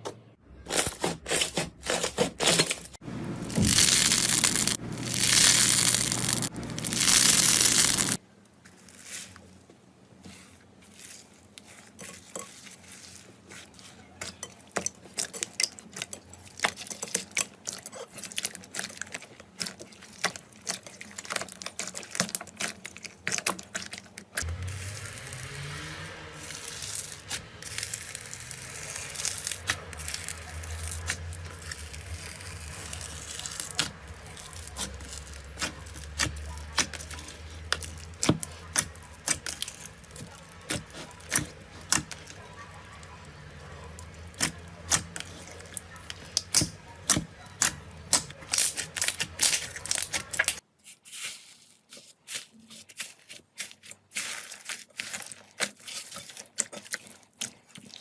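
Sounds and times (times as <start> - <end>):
slime popping and crackling: 3.5 - 8.2, 14.8 - 50.6.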